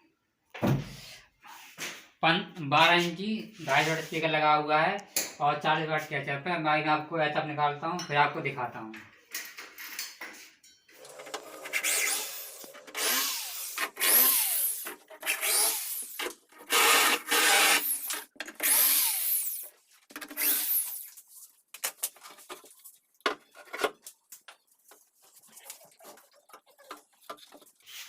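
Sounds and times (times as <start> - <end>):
cordless drill running: 11.0 - 19.7, 20.4 - 21.1.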